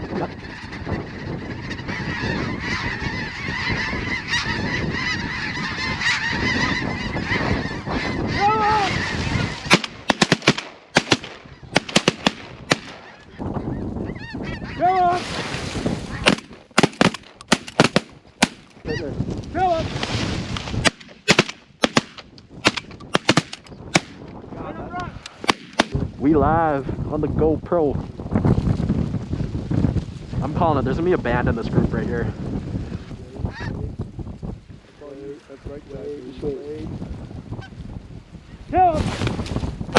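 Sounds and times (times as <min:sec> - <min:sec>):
geese honking: 0:00.0 - 0:10.4, 0:11.0 - 0:15.0.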